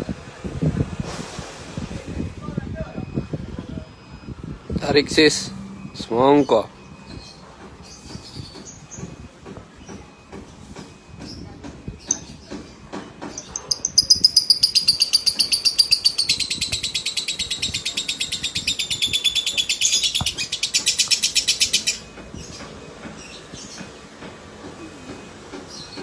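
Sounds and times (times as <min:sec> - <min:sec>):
lovebird trilling: 0:13.4 - 0:22.1.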